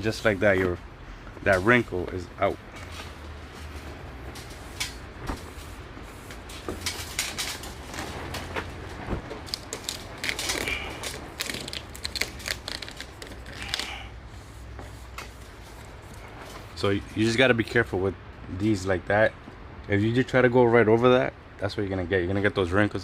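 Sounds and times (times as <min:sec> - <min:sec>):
vinyl film crackling and rustling: 0:01.4 - 0:16.9.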